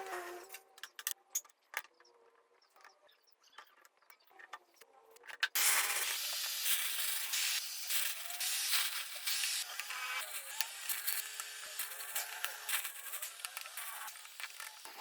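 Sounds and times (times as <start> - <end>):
loud steady spraying hiss: 5.6 - 15.0.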